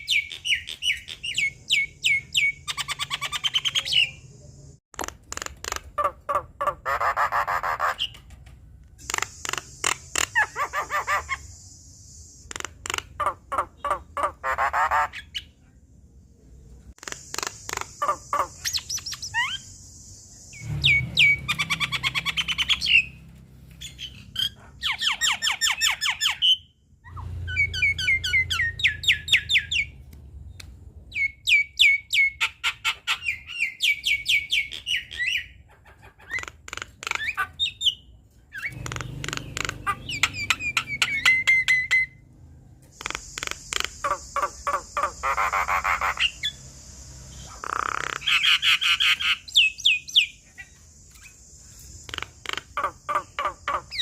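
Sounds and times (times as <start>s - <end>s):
myna singing clicks and rasps: 0.0s - 15.5s, 17.0s - 23.2s, 32.4s - 38.0s, 38.6s - 42.1s, 42.8s - 54.0s.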